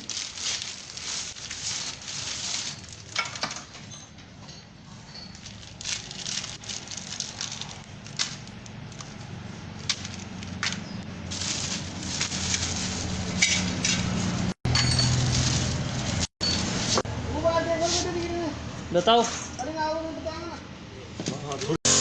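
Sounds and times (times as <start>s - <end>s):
metal tools clinking: 2.6s - 6.1s, 14.7s - 15.7s.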